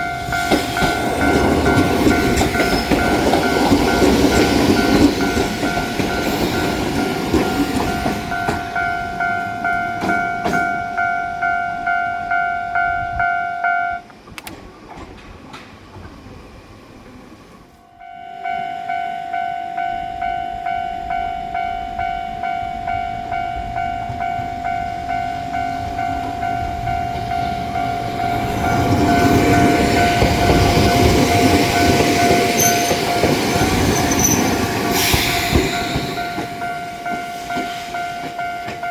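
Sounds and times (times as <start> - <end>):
train wheels rumbling on track: 0.0 - 13.3, 14.0 - 17.9, 19.8 - 38.9
level crossing bell ringing: 18.0 - 34.3.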